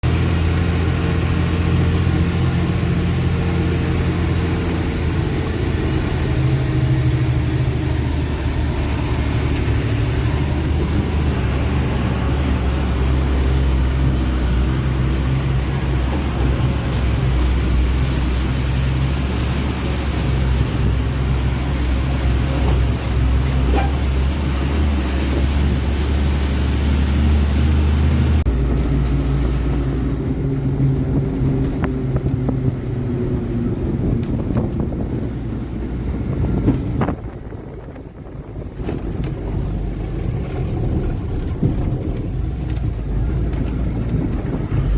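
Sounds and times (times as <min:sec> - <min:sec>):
heavy diesel engine running: 0:00.0 - 0:44.9.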